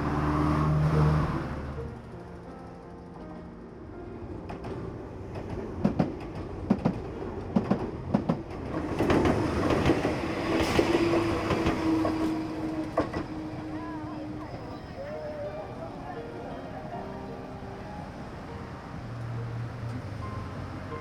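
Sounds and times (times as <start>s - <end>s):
train rushing with humming tone: 0.0s - 21.0s
train wheels clicking over rail joints: 4.5s - 13.7s.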